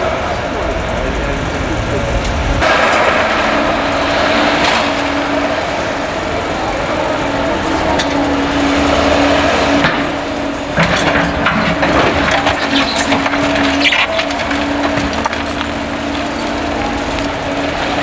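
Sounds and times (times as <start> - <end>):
excavator engine running: 0.0 - 18.0
debris cracking and crunching: 10.7 - 17.9.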